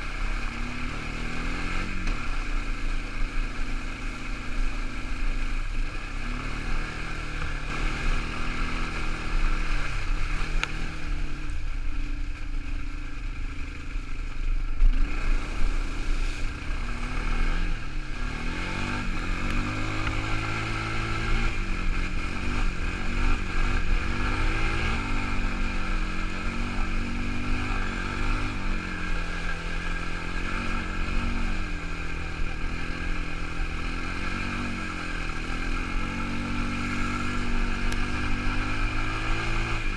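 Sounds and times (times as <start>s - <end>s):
quad bike engine revving: 0.0s - 13.9s, 14.8s - 39.9s.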